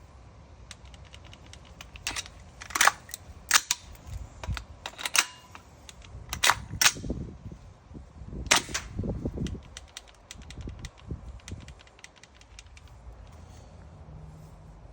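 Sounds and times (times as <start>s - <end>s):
airsoft rifle shots: 8.5s - 9.0s.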